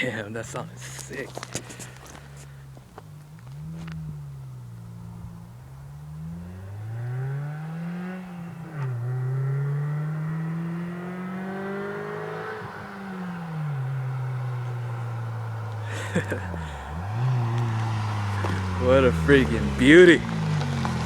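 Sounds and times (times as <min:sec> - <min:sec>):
car engine accelerating hard: 0:00.0 - 0:21.0.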